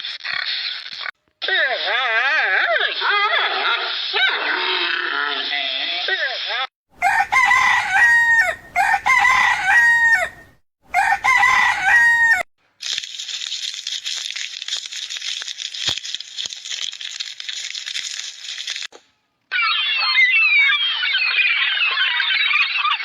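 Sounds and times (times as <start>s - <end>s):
rooster crowing: 7.0s - 12.5s.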